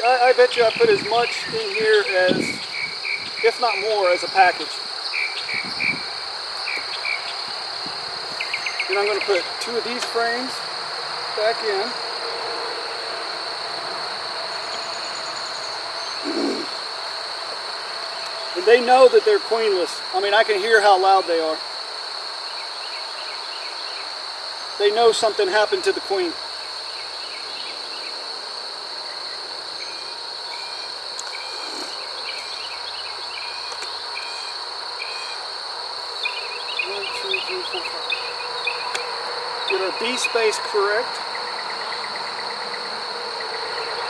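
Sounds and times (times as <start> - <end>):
bee colony humming: 35.4 - 41.2.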